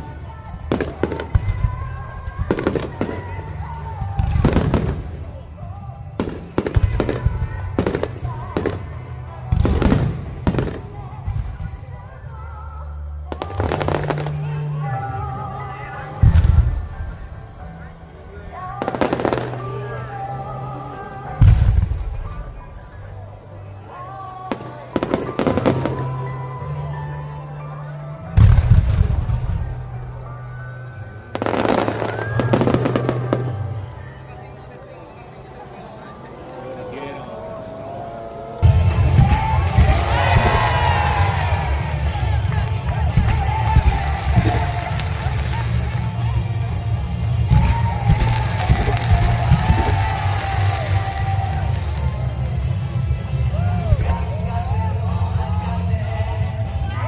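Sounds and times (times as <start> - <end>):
fireworks bursting with sharp bangs: 0.0 - 12.2, 13.3 - 17.9, 18.7 - 23.2, 24.5 - 26.7, 28.3 - 30.2, 31.3 - 34.2, 38.6 - 53.4
music: 0.0 - 57.0
firework deep boom: 16.2 - 17.4
firework crackle of small pops: 38.3 - 53.1
background music with bass: 38.6 - 57.0.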